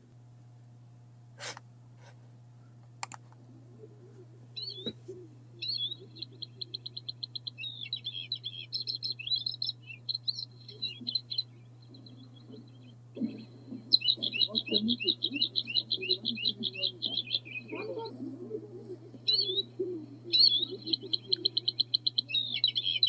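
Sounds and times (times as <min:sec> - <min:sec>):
steady low hum: 0:00.0 - 0:23.0
faint clicks: 0:02.9 - 0:03.4
bird singing high song: 0:04.3 - 0:23.0.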